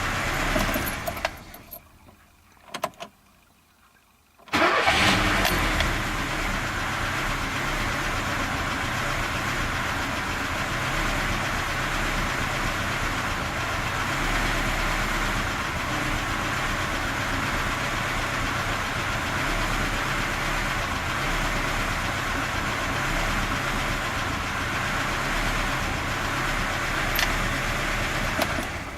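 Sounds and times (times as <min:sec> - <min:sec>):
car engine idling unevenly: 0:00.0 - 0:02.5, 0:04.5 - 0:28.9.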